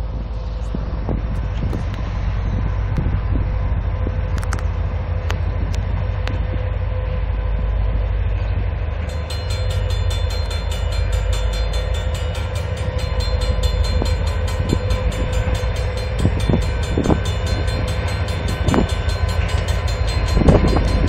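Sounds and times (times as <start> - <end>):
diesel train rumble: 0.0 - 21.0
bell ringing rapidly: 9.1 - 21.0.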